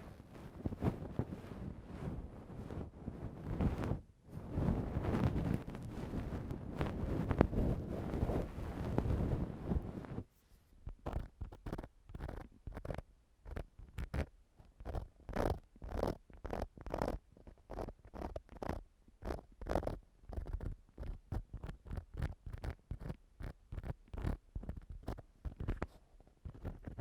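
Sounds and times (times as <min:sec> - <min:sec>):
tool scratching against microphone: 0:10.8 - 0:27.0.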